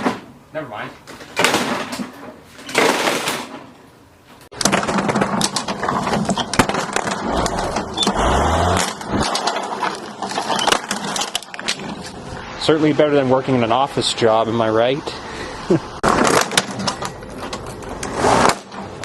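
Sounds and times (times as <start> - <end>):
rapid clattering and crackling: 4.4 - 12.4, 16.0 - 19.0.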